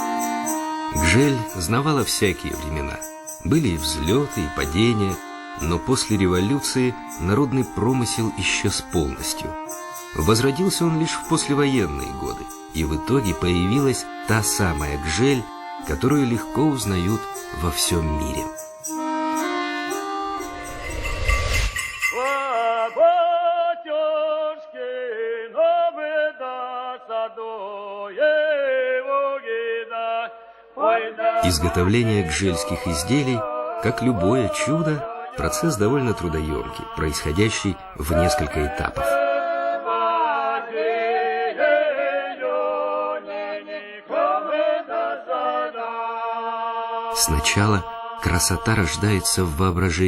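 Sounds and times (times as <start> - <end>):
person singing unaccompanied: 0.0 - 20.5, 22.2 - 42.6
male voices chanting: 31.0 - 39.8.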